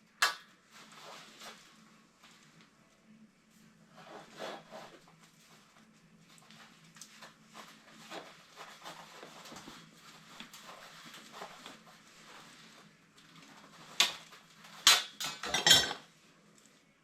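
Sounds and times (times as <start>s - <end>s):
faint steady hum: 0.0s - 17.0s
rustling and light taps: 5.0s - 14.9s.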